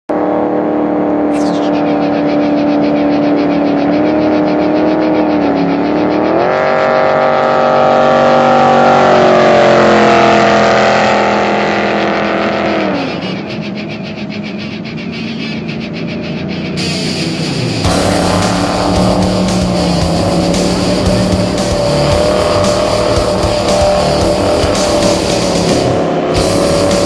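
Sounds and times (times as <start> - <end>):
jet boat engine revving: 0.1 - 27.0.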